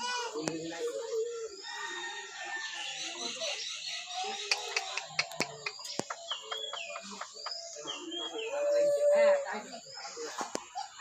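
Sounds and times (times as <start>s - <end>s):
parrot sharp clicks: 4.5s - 6.2s.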